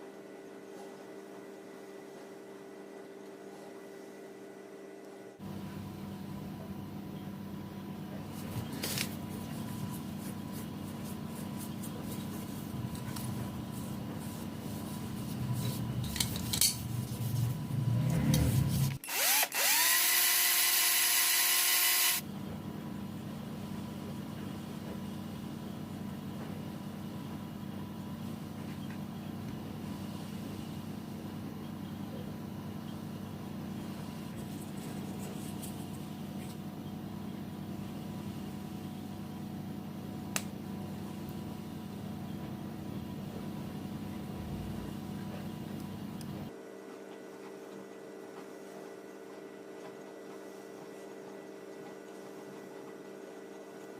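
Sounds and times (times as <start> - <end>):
steady low hum: 0.0 - 53.9
small power tool spinning: 18.9 - 22.2.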